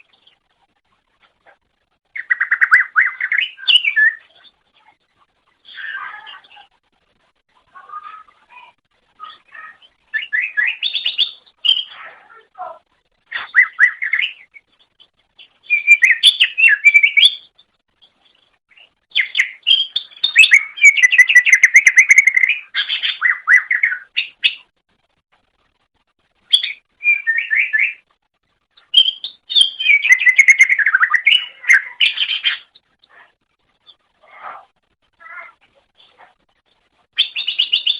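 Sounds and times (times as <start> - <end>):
bird singing chirps and trills: 2.1 - 5.0, 7.8 - 12.4, 13.4 - 24.6, 26.5 - 28.0, 28.8 - 32.8, 37.2 - 37.9.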